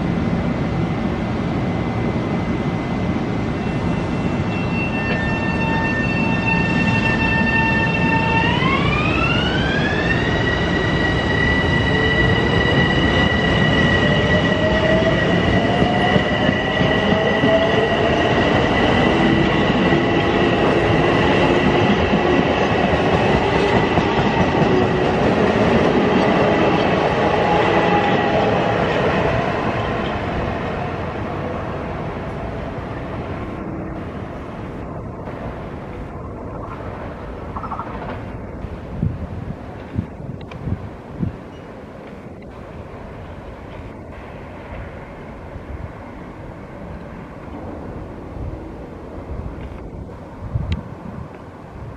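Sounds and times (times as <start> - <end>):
electric train whining: 0.0 - 51.9
train rolling rumble: 0.0 - 51.9.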